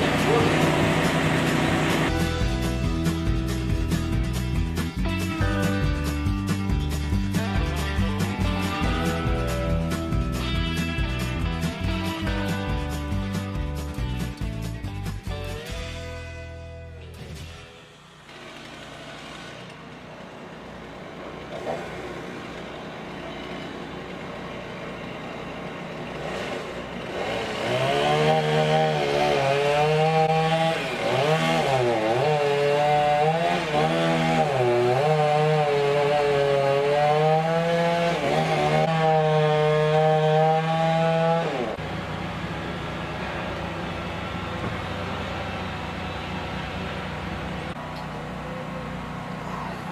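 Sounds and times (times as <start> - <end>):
chainsaw cutting wood: 0.0 - 5.8, 17.2 - 41.8.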